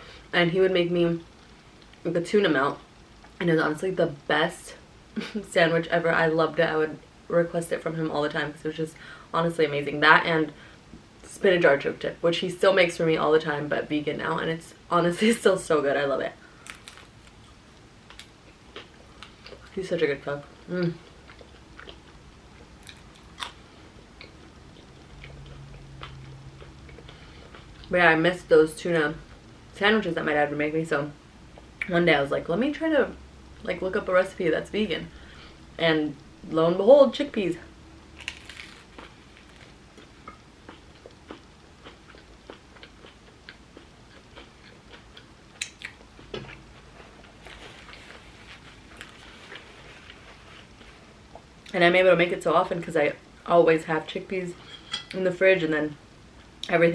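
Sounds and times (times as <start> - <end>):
person chewing crunchy food: 16.6 - 19.7, 20.6 - 27.9, 38.2 - 51.5
wet mouth clicks: 45.6 - 46.0.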